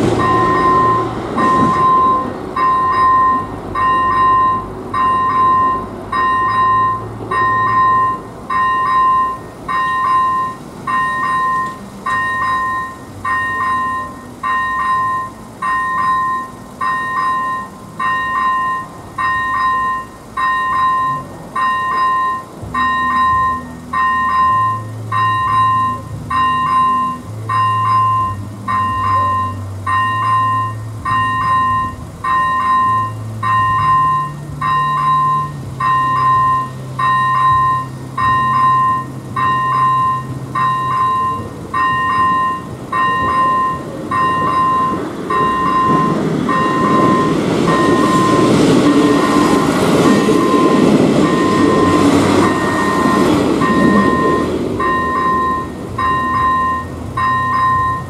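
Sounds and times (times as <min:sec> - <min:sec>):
train engine hum: 0:00.0 - 0:58.0
train rumble and wheel noise: 0:00.0 - 0:58.0
level crossing electronic bell dinging: 0:00.2 - 0:58.0.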